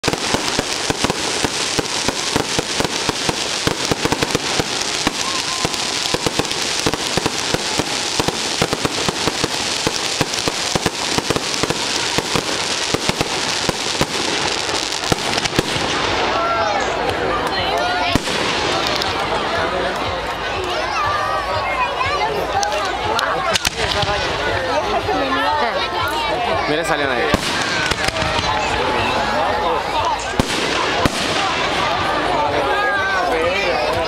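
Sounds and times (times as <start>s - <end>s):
fireworks crackling and popping: 0.0s - 20.1s, 22.6s - 25.4s, 26.9s - 32.7s.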